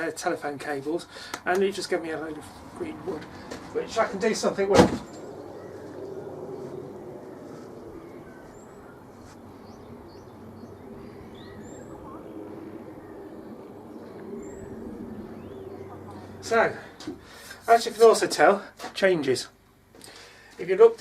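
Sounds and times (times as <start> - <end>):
distant traffic hum: 0.0 - 21.0
small birds chirping: 5.0 - 17.6.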